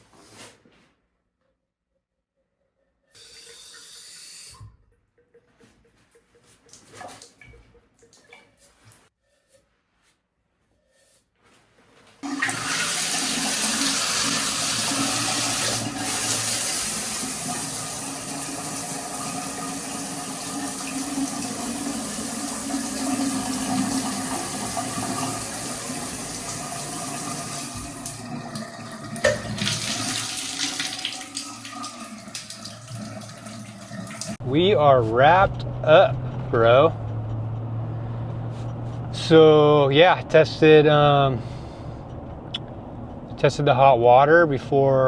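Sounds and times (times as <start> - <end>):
tap water running: 3.1 - 9.1, 12.2 - 34.4.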